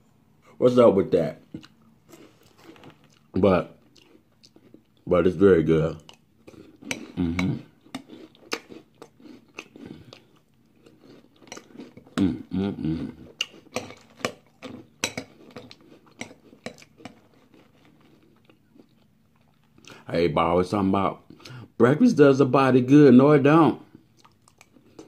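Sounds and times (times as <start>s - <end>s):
chewing and crunching cereal: 1.4s - 20.1s, 23.8s - 25.0s.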